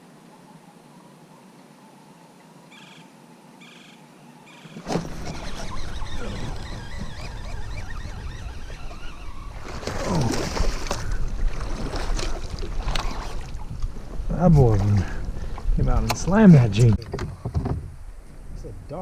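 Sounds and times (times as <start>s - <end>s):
fish splashing: 4.8s - 13.7s
water sloshing at kayak: 4.8s - 15.8s
wind on microphone: 4.9s - 19.0s.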